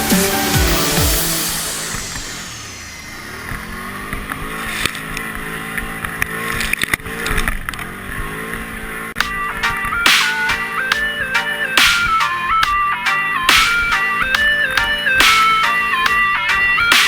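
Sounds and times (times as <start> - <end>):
atv engine revving: 3.1 - 9.2
sharp knocks: 9.2 - 12.8, 13.5 - 17.0.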